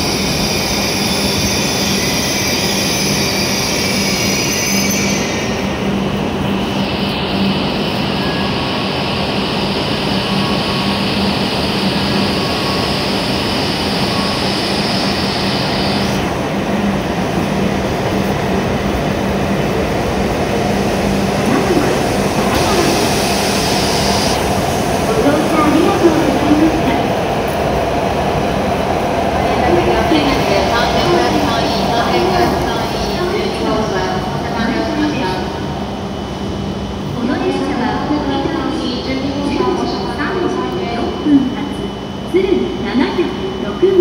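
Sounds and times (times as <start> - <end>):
high squealing brakes: 0.0 - 5.7
train equipment rumble and hiss: 0.0 - 44.0.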